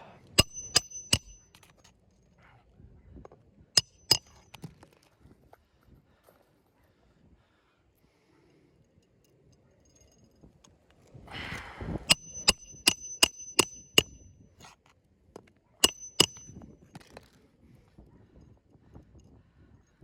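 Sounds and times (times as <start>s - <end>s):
hammer striking roofing nails: 0.4s - 1.5s, 3.8s - 4.6s, 12.1s - 14.2s, 15.8s - 16.5s.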